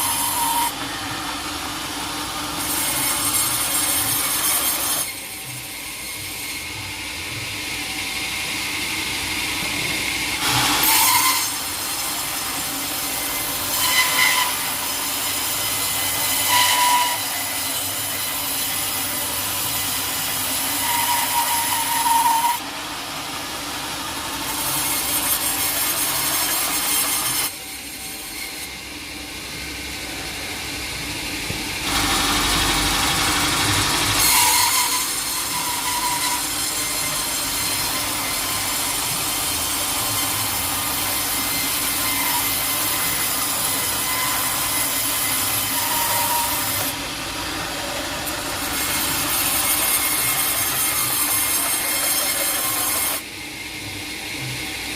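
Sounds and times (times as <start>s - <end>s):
saw squealing: 0.0s - 0.8s, 10.4s - 22.7s, 32.0s - 47.0s, 48.2s - 53.2s
saw cutting through log: 0.0s - 29.0s, 31.8s - 53.4s.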